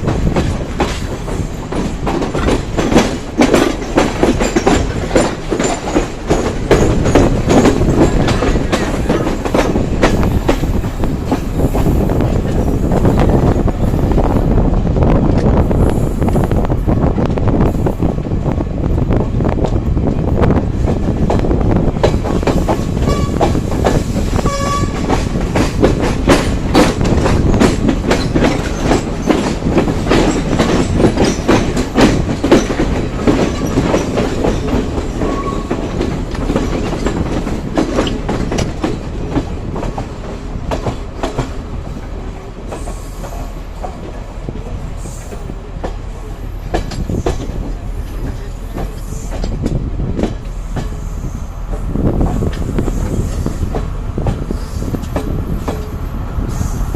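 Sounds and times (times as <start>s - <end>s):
train wheels clattering over rails: 0.0s - 56.9s
train wheel squeals: 22.6s - 25.2s, 33.4s - 35.8s, 42.7s - 44.0s, 46.2s - 49.6s, 50.4s - 53.8s.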